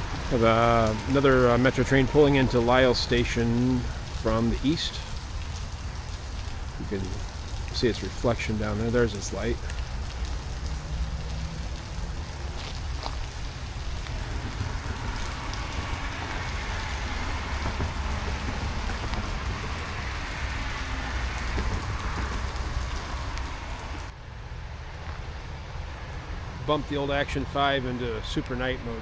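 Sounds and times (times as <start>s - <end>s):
steady rain falling: 0.0s - 24.2s
low rumble: 8.5s - 26.7s.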